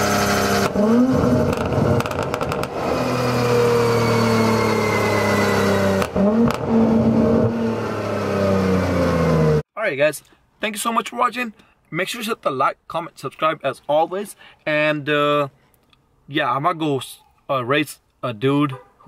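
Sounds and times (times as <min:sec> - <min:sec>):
exhaust crackles and pops: 0:00.0 - 0:03.5, 0:05.9 - 0:07.2
car engine and exhaust: 0:00.0 - 0:09.7.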